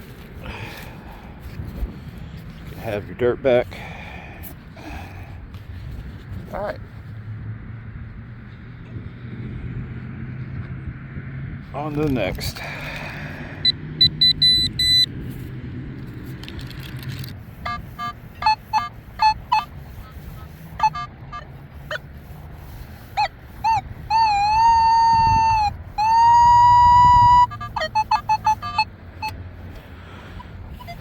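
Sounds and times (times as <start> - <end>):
wind rumble on microphone: 0.0 - 31.0
metal detector beeps: 13.6 - 15.1, 23.2 - 29.4.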